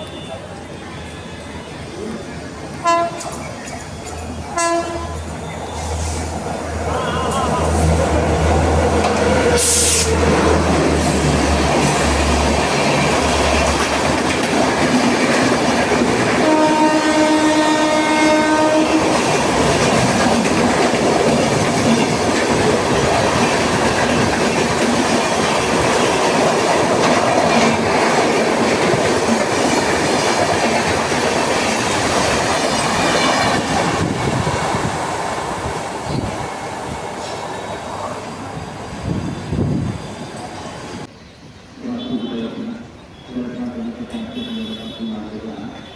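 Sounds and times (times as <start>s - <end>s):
train horn blast: 2.8s - 3.4s, 4.6s - 5.3s, 9.0s - 10.4s, 16.4s - 19.3s, 44.1s - 45.2s
train wheels clattering on rails: 7.1s - 38.7s.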